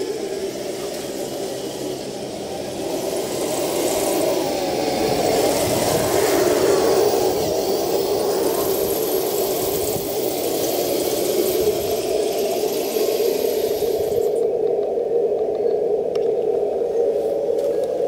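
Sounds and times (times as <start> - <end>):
toy motor and gearbox whir: 0.0 - 14.4.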